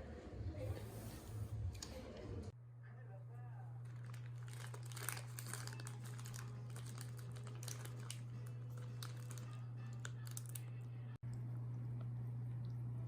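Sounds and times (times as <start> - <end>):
steady low hum: 8.2 - 13.0.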